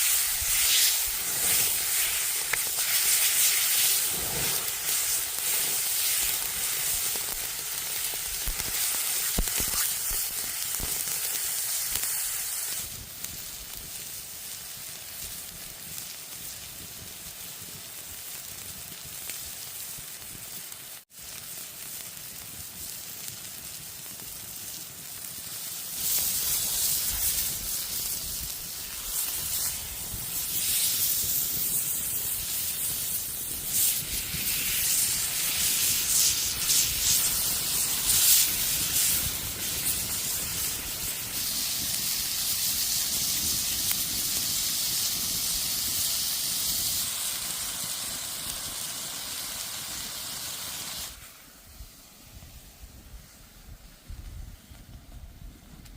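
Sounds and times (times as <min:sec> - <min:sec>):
oil crackling: 0:00.0 - 0:12.9
hot oil sizzling: 0:00.0 - 0:53.4.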